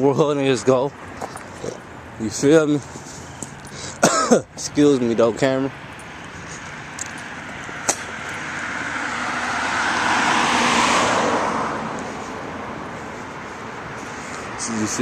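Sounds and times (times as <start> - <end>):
car passing by: 6.1 - 15.0.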